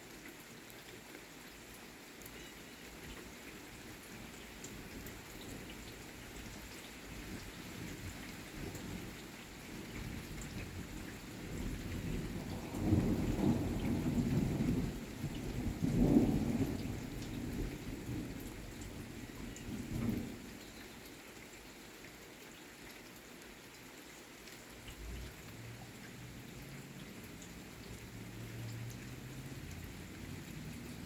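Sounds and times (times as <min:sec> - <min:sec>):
steady rain: 0:00.0 - 0:31.0
thunder rolling: 0:11.5 - 0:17.0.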